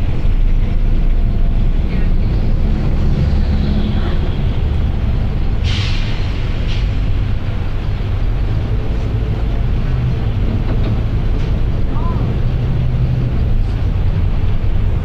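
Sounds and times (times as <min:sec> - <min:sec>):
bus diesel engine droning: 0:00.0 - 0:15.0
air brake hiss: 0:05.6 - 0:07.0.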